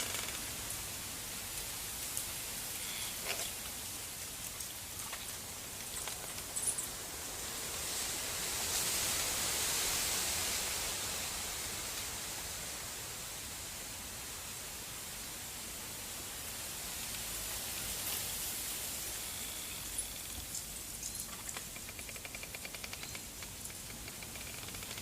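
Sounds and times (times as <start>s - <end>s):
snowstorm hiss: 6.4s - 21.0s.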